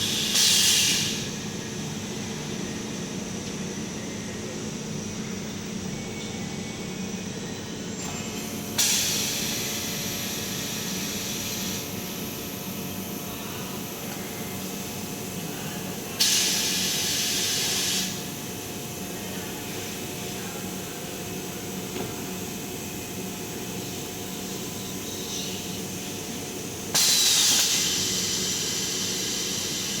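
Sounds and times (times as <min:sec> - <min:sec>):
compressed air hiss: 0:00.0 - 0:01.3, 0:16.2 - 0:18.2, 0:26.9 - 0:30.0.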